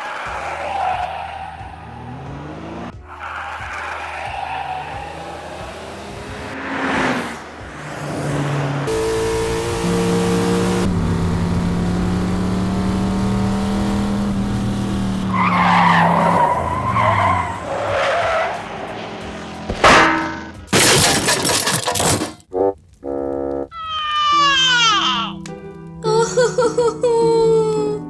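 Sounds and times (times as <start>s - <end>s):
tyres screeching: 0.0s - 6.6s, 14.8s - 22.4s
whoosh: 6.4s - 7.8s
cartoon vehicle engine running: 8.9s - 15.3s.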